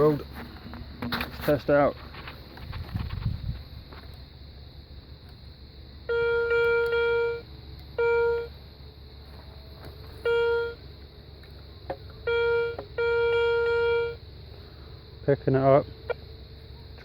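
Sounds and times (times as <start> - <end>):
metal detector beeping: 6.0 - 8.6, 10.0 - 10.9, 12.2 - 14.2.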